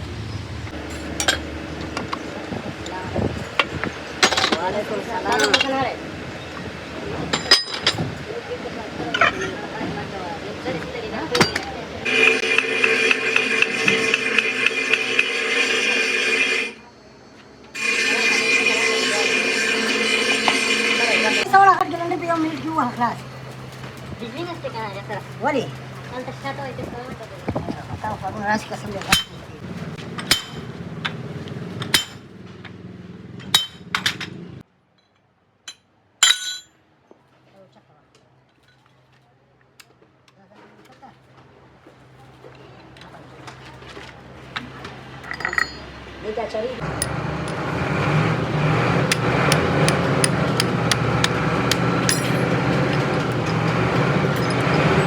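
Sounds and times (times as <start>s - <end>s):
engine hum: 0.0s - 34.7s, 41.2s - 55.0s
metal tools clinking: 0.8s - 2.3s, 3.4s - 5.8s, 7.3s - 8.2s, 9.1s - 9.6s, 11.4s - 11.7s, 30.1s - 30.7s, 33.4s - 34.4s, 35.0s - 36.7s, 45.2s - 46.0s, 49.1s - 55.0s
hammer striking metal: 30.2s - 30.8s, 31.8s - 32.3s, 33.4s - 34.2s, 35.7s - 36.7s, 46.9s - 47.8s, 49.0s - 53.7s.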